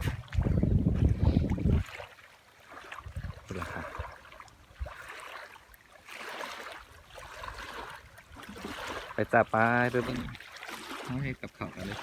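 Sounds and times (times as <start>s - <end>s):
wind buffeting microphone: 0.0s - 2.1s, 2.9s - 5.1s
small waves washing onto sand: 0.0s - 12.0s.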